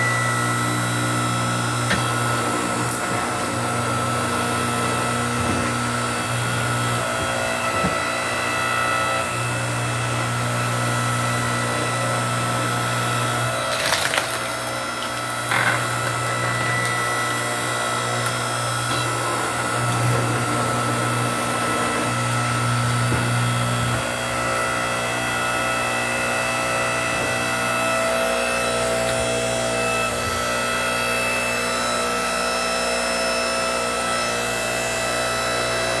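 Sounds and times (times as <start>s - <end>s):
log splitter humming: 0.0s - 36.0s
wood cracking sharply: 13.1s - 30.7s.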